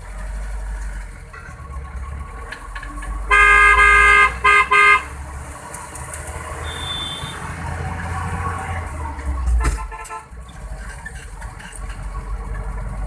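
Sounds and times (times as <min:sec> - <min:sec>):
road noise: 0:00.0 - 0:13.0
vehicle engine rumble: 0:00.0 - 0:13.0
vehicle horn honking: 0:03.3 - 0:05.1, 0:06.6 - 0:07.4, 0:09.6 - 0:10.3.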